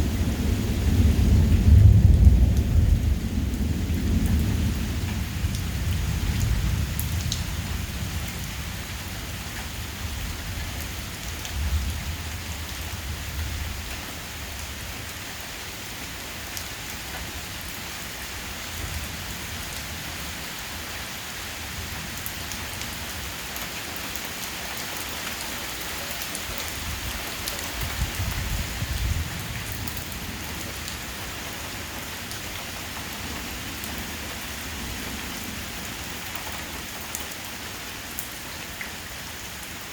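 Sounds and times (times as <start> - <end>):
thunder rumbling: 0.0 - 8.9
heavy rain pouring: 0.0 - 39.9.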